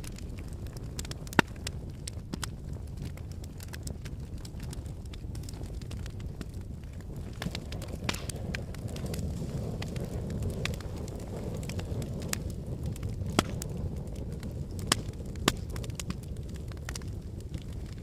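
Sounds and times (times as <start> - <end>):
logs crackling and popping: 0.0 - 18.0
flame rushing in fireplace: 4.6 - 18.0.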